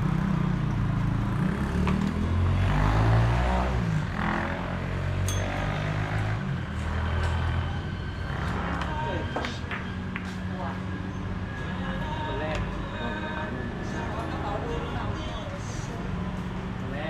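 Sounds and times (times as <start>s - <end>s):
vehicle engine passing by: 0.0s - 17.0s.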